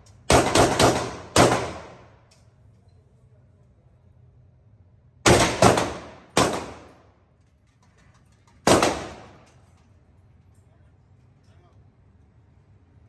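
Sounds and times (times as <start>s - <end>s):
rifle gunshots echoing: 0.3s - 2.2s, 5.3s - 7.0s, 8.7s - 9.5s.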